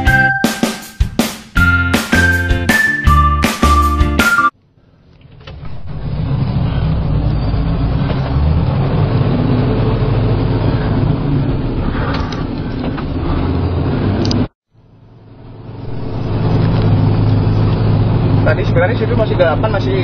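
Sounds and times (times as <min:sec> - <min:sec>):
road noise: 0:04.6 - 0:20.0
truck engine running: 0:05.5 - 0:20.0.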